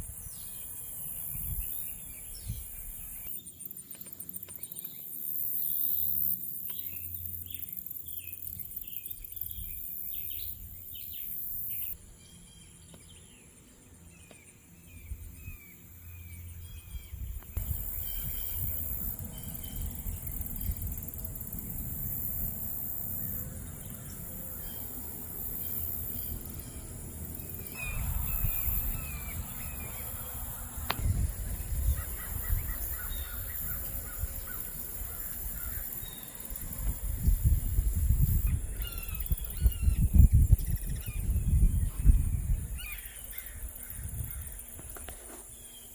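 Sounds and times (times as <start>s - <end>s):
small birds chirping: 0.1s - 21.5s, 22.8s - 37.3s, 38.2s - 45.9s
high-pitched insect drone: 17.6s - 41.5s.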